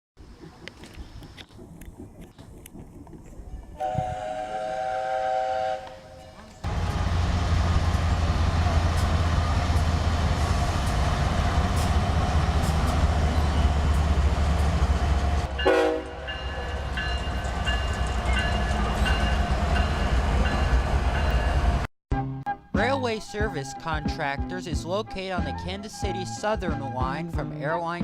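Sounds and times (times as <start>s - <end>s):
train engines rumbling: 0.2s - 21.9s.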